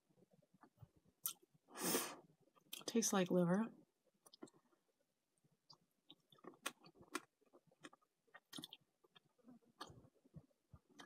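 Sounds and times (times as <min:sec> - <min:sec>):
close-up chewing: 0:04.2 - 0:04.9, 0:05.6 - 0:11.0
wet mouth clicks: 0:05.7 - 0:08.9.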